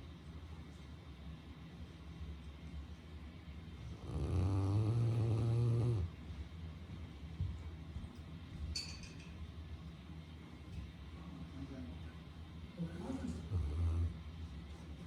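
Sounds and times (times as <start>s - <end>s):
dog snoring: 3.8s - 6.2s, 13.0s - 14.3s.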